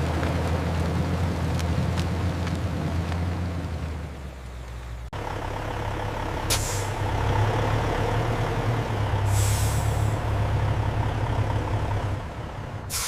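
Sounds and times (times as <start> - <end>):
truck engine idling: 0.0 - 13.0
air brake hiss: 6.5 - 7.0, 9.3 - 10.2.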